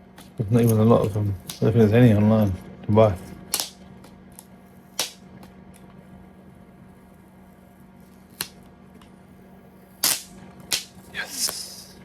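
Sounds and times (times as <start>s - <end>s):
faint steady hum: 0.0s - 12.0s
packaging sharp snap: 3.5s - 3.8s, 4.4s - 5.5s, 10.0s - 11.6s.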